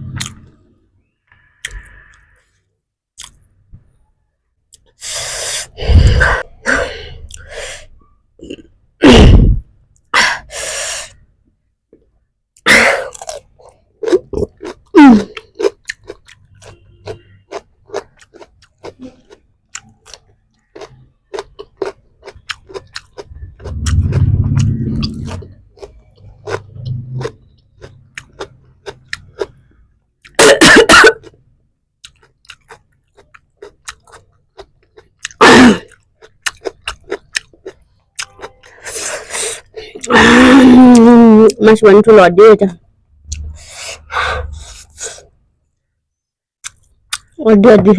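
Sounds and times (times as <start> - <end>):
close chewing and crunching: 12.6 - 30.4, 32.0 - 40.2, 46.6 - 47.4.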